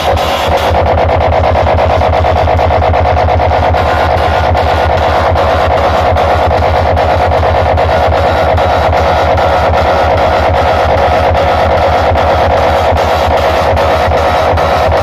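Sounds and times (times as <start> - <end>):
fast bass beat: 0.0 - 15.0.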